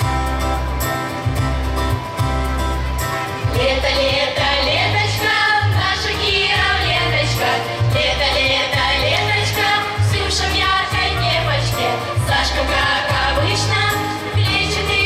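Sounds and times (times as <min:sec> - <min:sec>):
bass line: 0:00.0 - 0:15.0
vocal group singing: 0:03.5 - 0:15.0.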